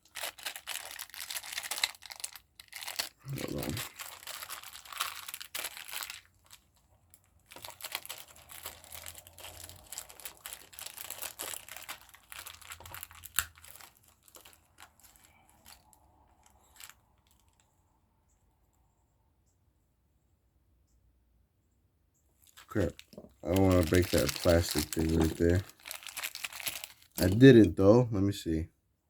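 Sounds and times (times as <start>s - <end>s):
plastic packaging crinkling: 0.0s - 17.6s, 22.4s - 27.8s.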